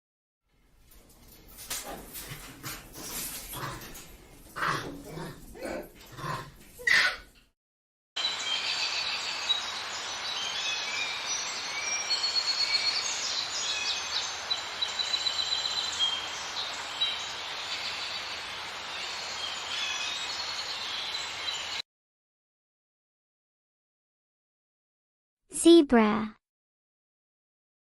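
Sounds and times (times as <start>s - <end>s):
outdoor ambience hiss: 8.2s - 21.8s
small birds chirping and trilling: 8.2s - 21.8s.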